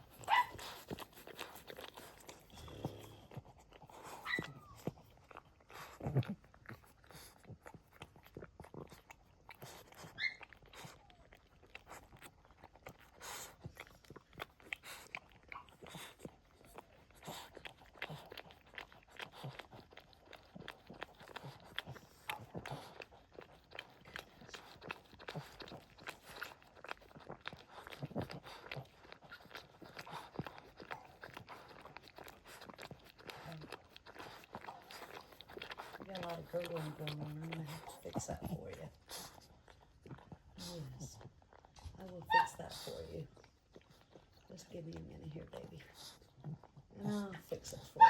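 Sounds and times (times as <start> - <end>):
dog licking wet smacks: 0.0 - 48.0
puppy squeak: 4.2 - 4.8, 10.2 - 10.6.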